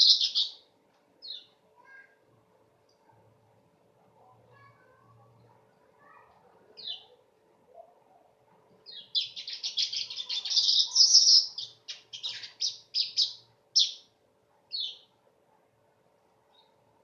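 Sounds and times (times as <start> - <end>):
weaver bird singing: 0.0 - 0.6, 1.2 - 1.6, 6.8 - 7.1, 8.9 - 14.1, 14.7 - 15.1.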